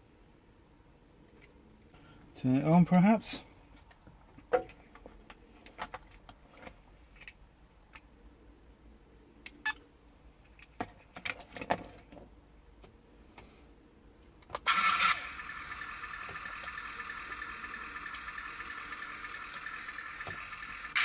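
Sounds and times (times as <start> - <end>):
electric motor whine: 14.7 - 21.0.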